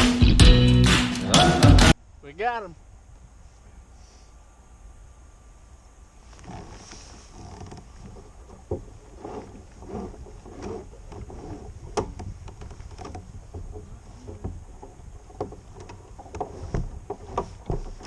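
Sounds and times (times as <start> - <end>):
water knocking against kayak hull: 7.6 - 18.0.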